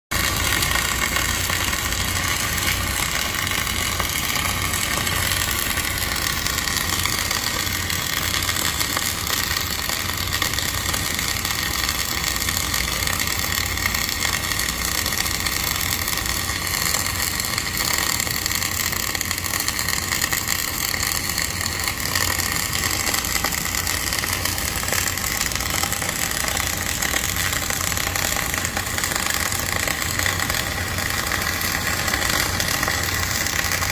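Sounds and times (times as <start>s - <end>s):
crackling arc hiss: 0.2s - 33.9s.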